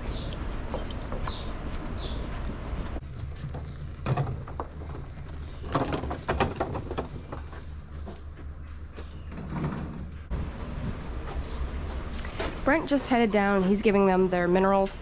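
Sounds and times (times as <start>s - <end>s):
knocks and clatters: 3.0s - 10.3s.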